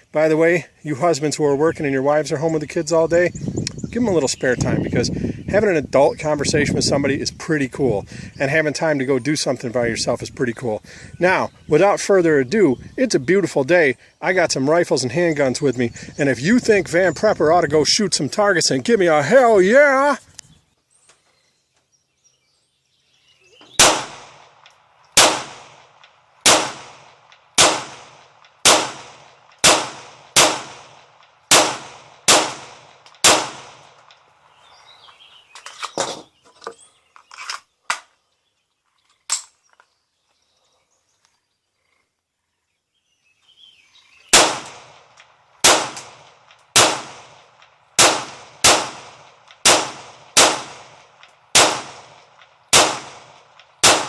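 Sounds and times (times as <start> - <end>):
gunshots: 23.8 - 24.6, 25.2 - 34.0, 44.3 - 54.0.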